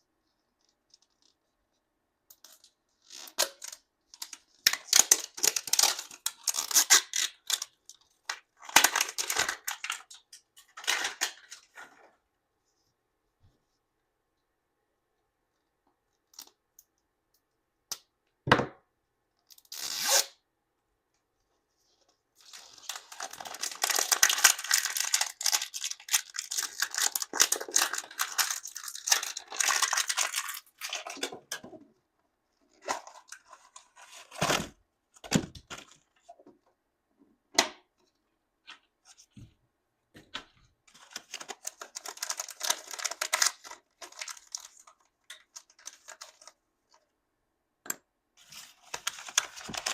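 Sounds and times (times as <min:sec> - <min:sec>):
plastic wrapping tearing and crinkling: 0:03.0 - 0:11.8, 0:19.7 - 0:20.4, 0:22.4 - 0:31.3, 0:41.0 - 0:46.6, 0:48.4 - 0:49.9.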